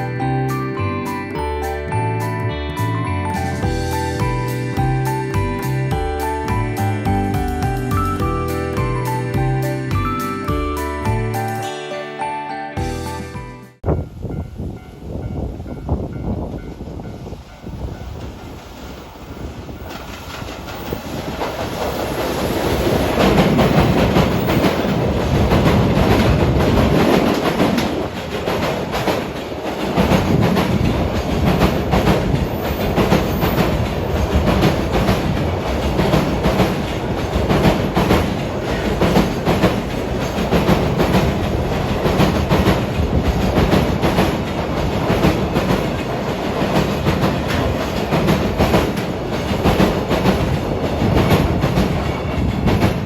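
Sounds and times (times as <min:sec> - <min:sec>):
train wheels clickety-clack: 0:14.9 - 0:53.0.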